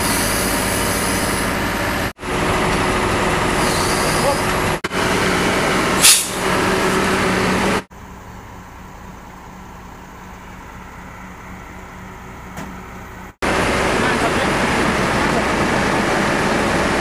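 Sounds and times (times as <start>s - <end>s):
heavy truck engine running: 0.0s - 17.0s
air hiss: 6.0s - 6.4s.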